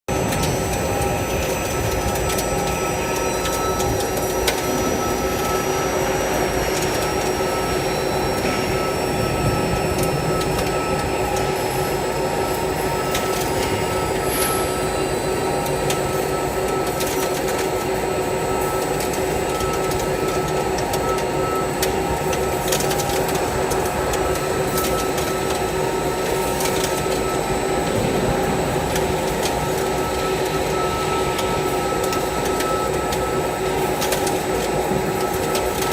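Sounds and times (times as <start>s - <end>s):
milling machine whine: 0.1s - 35.9s.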